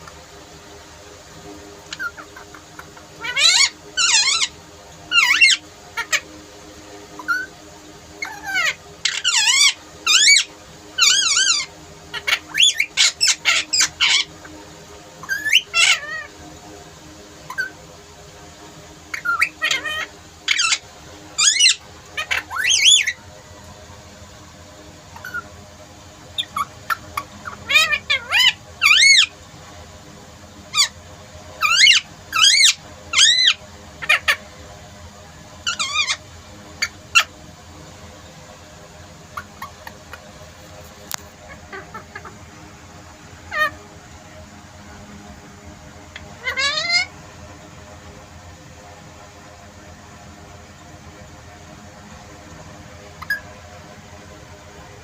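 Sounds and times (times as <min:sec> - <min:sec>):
parrot squawking: 0:01.8 - 0:06.3, 0:07.2 - 0:07.6, 0:08.2 - 0:14.4, 0:15.2 - 0:16.4, 0:17.5 - 0:17.8, 0:19.1 - 0:23.2, 0:25.1 - 0:25.5, 0:26.3 - 0:29.4, 0:30.7 - 0:31.0, 0:31.6 - 0:34.5, 0:35.6 - 0:36.2, 0:36.8 - 0:37.4, 0:39.3 - 0:40.2, 0:41.1 - 0:42.4, 0:43.4 - 0:43.9, 0:46.1 - 0:47.2, 0:53.2 - 0:53.5.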